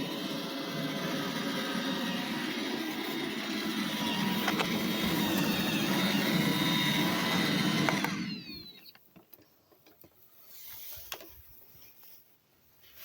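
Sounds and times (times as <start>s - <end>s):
robot vacuum humming: 0.0s - 8.9s.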